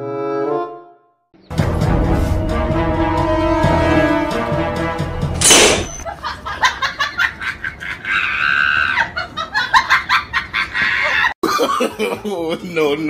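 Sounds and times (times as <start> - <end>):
comic brass music: 0.1 - 6.0
balloon bursting: 5.4 - 6.0.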